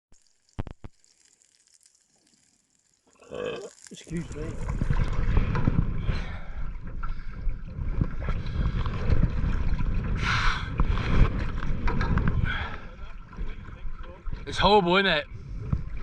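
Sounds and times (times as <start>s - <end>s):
wind buffeting microphone: 4.2s - 16.0s.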